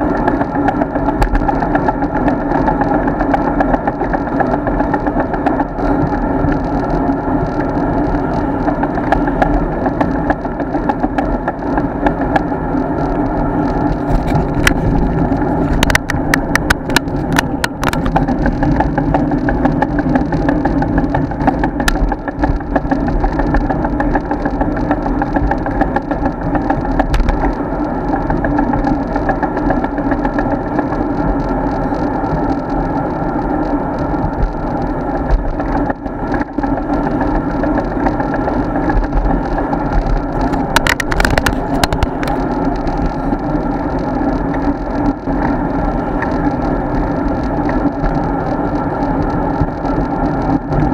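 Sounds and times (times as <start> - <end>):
wind and road noise: 0.0 - 50.9
rattling clicks: 34.0 - 50.9.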